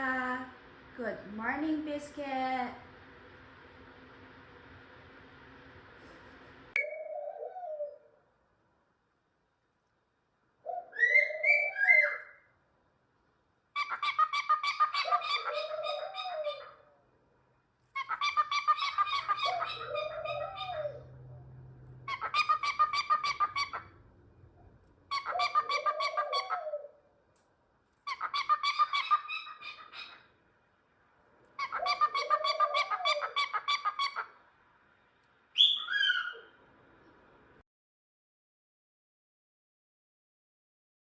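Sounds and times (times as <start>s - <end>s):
cockatiel calling: 10.8s - 12.4s, 13.8s - 16.8s, 18.0s - 21.1s, 22.1s - 23.9s, 25.1s - 26.9s, 28.1s - 30.3s, 31.6s - 34.3s, 35.6s - 36.5s.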